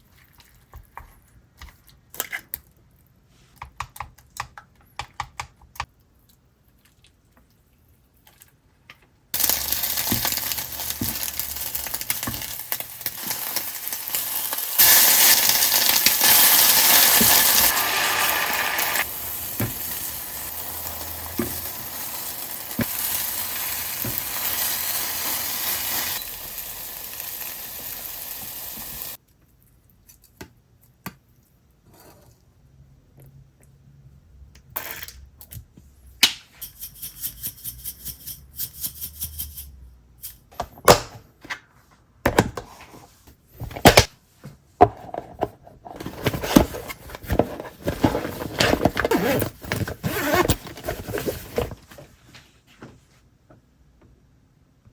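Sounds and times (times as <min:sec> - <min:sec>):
food sizzling in a pan: 0:09.4 - 0:29.2.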